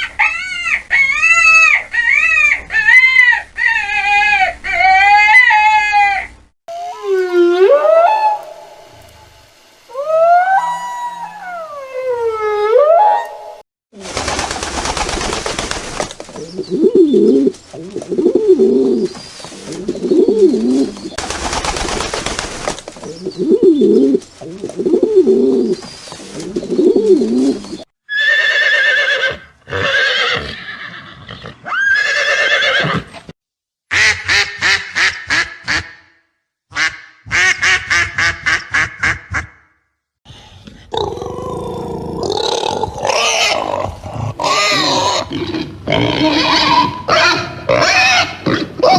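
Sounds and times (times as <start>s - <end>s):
rapid pulsed calls: 6.7s - 11.8s.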